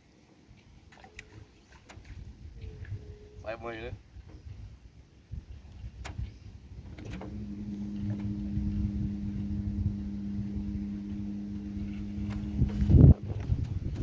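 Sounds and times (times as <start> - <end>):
small motor humming: 6.9 - 14.0
low rumble: 7.0 - 14.0.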